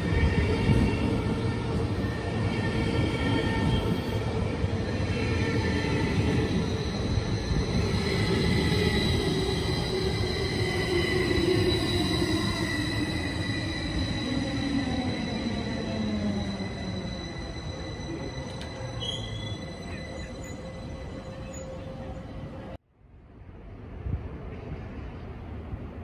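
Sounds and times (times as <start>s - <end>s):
high steady brake squeal: 5.5s - 22.5s.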